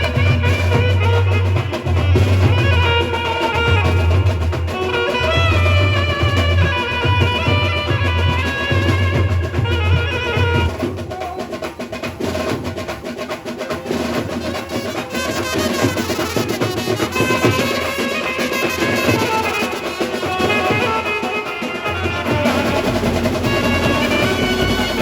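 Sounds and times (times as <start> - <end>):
saxophone melody: 0.0 - 11.6, 14.2 - 25.0
dense drum strokes: 0.0 - 13.0, 18.7 - 25.0.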